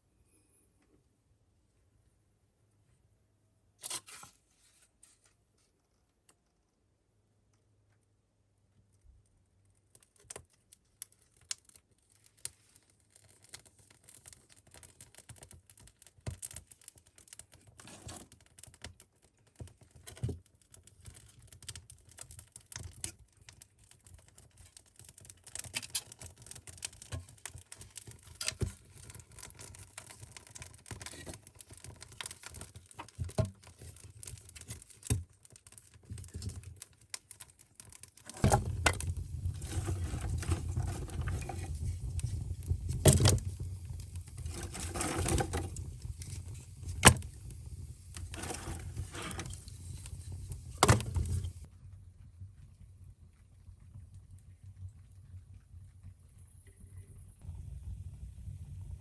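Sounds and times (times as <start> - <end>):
light clicks and crackles: 8.8 - 51.7.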